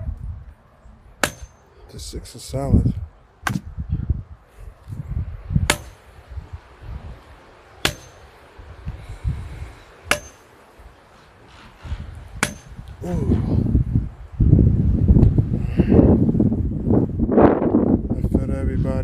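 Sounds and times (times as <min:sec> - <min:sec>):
wind rumble on microphone: 0:00.0 - 0:01.0, 0:01.9 - 0:07.5, 0:08.5 - 0:10.2, 0:10.8 - 0:19.0
sledgehammer striking steel pipe: 0:01.2 - 0:01.7, 0:05.7 - 0:06.1, 0:07.8 - 0:08.3, 0:10.0 - 0:10.5, 0:12.4 - 0:12.8.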